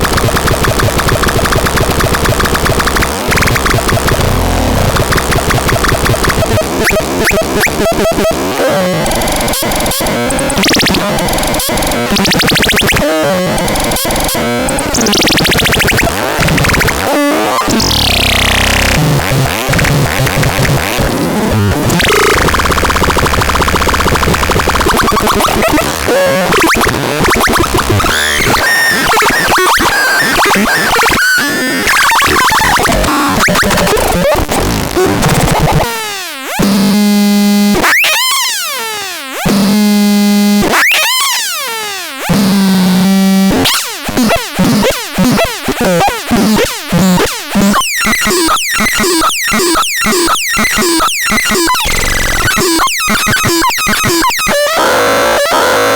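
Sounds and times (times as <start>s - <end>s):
noisy synthesizer textures: 0.0s - 34.4s
buzzy synthesizer notes: 0.0s - 37.8s, 42.3s - 55.9s.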